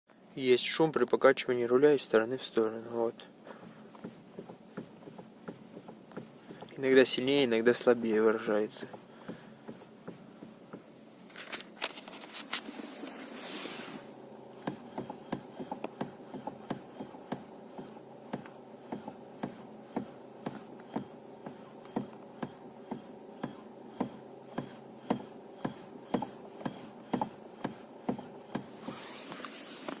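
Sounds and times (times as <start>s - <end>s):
steady low hum: 0.1s - 30.0s
knocking in car steering: 3.5s - 6.8s, 8.8s - 10.9s, 14.6s - 28.8s.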